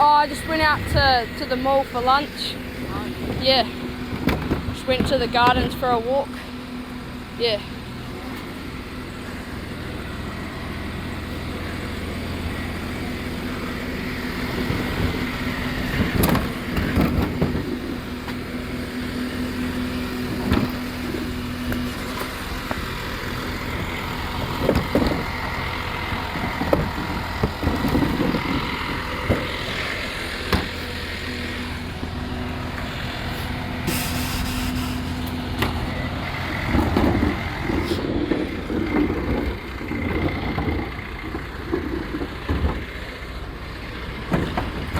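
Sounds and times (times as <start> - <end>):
truck engine hum: 0.0 - 44.9
clanks and knocks: 4.1 - 5.9, 44.2 - 44.9
short hiss: 33.9 - 35.3.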